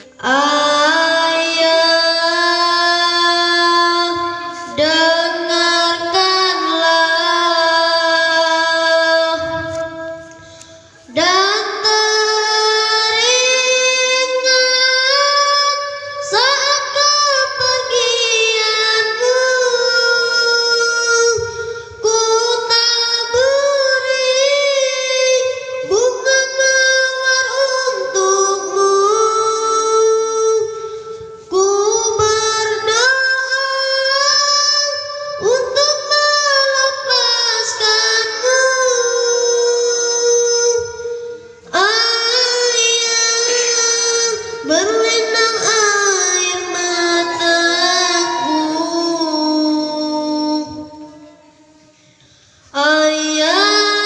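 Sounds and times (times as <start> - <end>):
child singing solo: 41.7 - 51.3.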